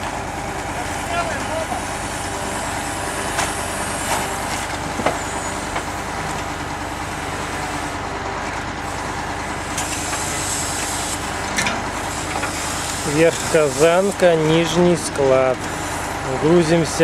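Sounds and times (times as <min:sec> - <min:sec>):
diesel truck engine running: 0:00.0 - 0:17.0
knocks and clanks of logs: 0:03.3 - 0:06.7.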